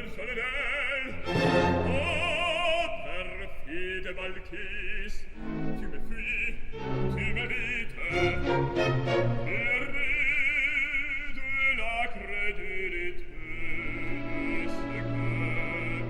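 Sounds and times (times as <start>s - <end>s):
operatic singing with vibrato: 0.0s - 16.0s
orchestra playing: 1.2s - 2.8s, 5.4s - 10.1s, 14.1s - 16.0s.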